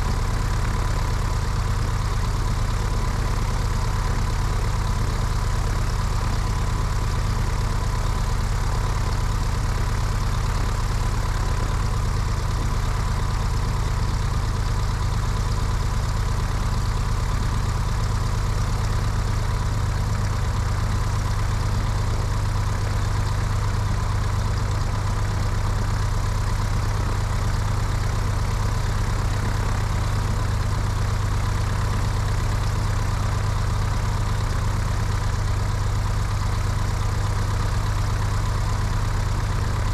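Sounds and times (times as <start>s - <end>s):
propeller plane engine running: 0.0s - 39.9s.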